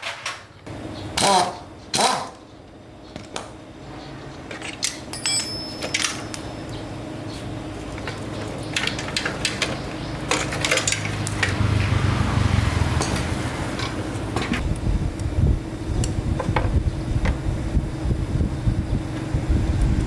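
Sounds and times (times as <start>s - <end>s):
metal tools clinking: 4.5s - 6.8s, 7.9s - 11.6s
steady low hum: 11.4s - 20.0s.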